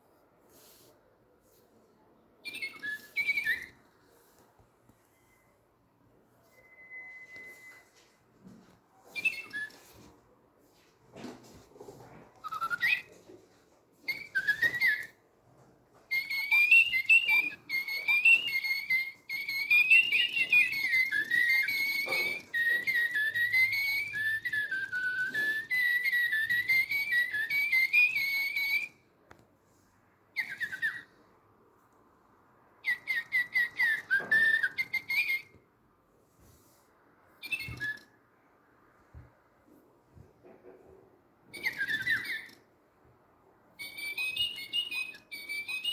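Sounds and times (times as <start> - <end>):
toy bird chirping: 2.4 - 3.8, 9.1 - 10.0, 12.4 - 13.2, 14.0 - 15.2, 16.1 - 29.0, 30.4 - 31.2, 32.8 - 35.6, 37.4 - 38.1, 41.5 - 42.6, 43.8 - 45.9
toy bird whistled warbling tune: 2.4 - 3.8, 6.5 - 8.0, 9.1 - 10.1, 12.4 - 13.3, 14.0 - 15.2, 16.0 - 29.0, 30.4 - 31.2, 32.8 - 35.6, 37.4 - 38.2, 41.5 - 42.6, 43.8 - 45.9.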